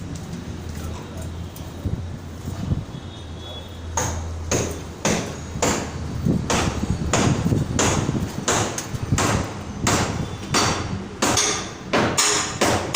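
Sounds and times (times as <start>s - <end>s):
hammer blows: 4.0s - 12.9s.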